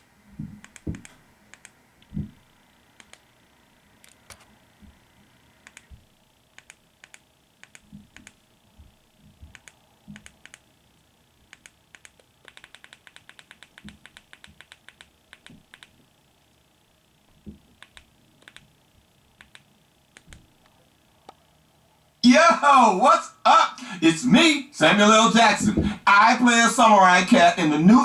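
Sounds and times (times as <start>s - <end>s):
faint sharp clicks: 11.5s - 15.9s.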